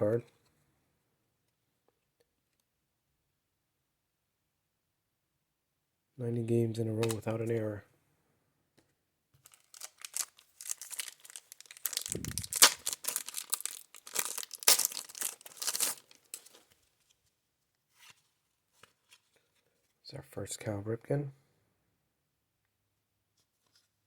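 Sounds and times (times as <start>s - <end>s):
wax paper wrapper tearing: 9.4s - 16.6s.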